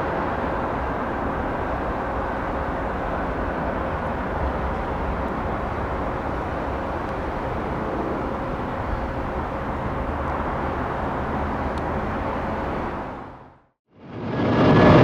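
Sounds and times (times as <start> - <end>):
loud jet engine noise: 0.0 - 13.4, 14.0 - 15.0
airliner jet noise: 0.0 - 15.0.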